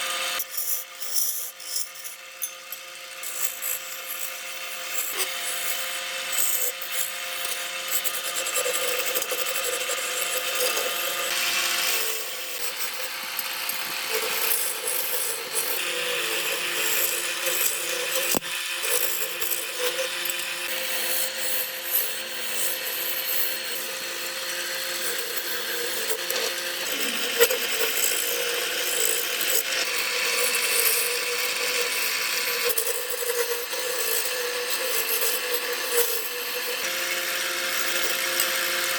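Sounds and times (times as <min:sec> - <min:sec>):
tool rasping through wood: 0:00.0 - 0:38.9
motor whine: 0:01.0 - 0:19.7.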